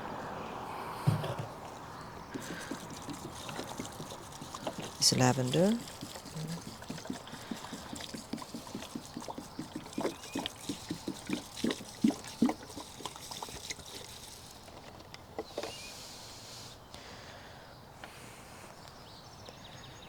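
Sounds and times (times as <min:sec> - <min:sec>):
water spray hiss: 0:01.0 - 0:14.7
water splashing on plants: 0:01.6 - 0:14.7.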